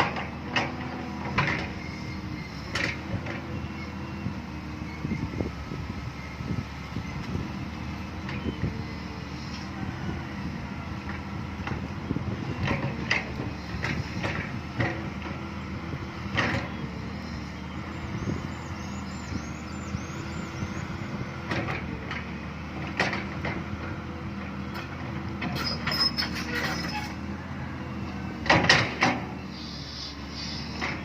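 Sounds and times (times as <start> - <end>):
excavator diesel engine running: 0.0 - 31.0
faint high squeal: 25.6 - 27.2.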